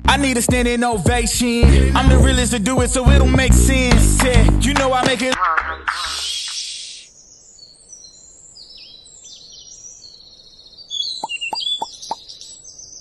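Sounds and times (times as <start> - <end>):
music track: 1.6 - 5.3
small birds chirping: 5.9 - 13.0.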